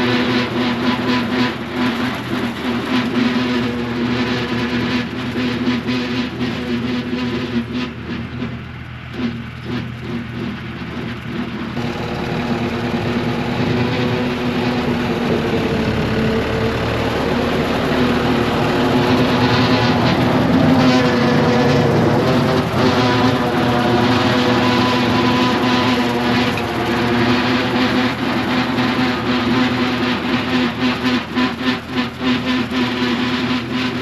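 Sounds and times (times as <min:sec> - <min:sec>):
rotary cutter mowing: 0:00.0 - 0:34.0
tractor engine running: 0:00.0 - 0:34.0.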